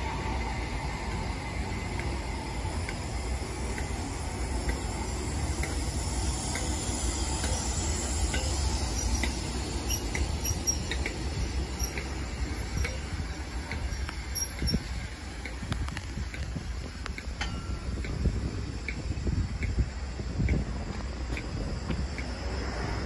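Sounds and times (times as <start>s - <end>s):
train rumbling past: 0.0s - 23.0s
high-pitched wheel squeaks: 5.4s - 19.1s.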